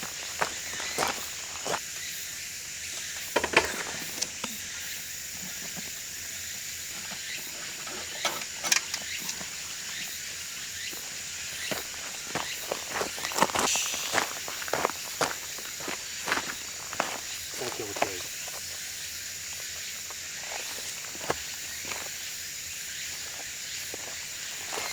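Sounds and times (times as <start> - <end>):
footsteps on gravel and leaves: 0.0 - 2.1, 5.5 - 18.8
high-pitched hiss: 0.0 - 24.9.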